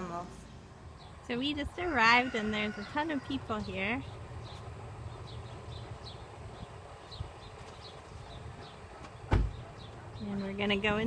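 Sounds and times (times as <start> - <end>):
bird chirping: 0.4 - 1.4, 3.5 - 10.9.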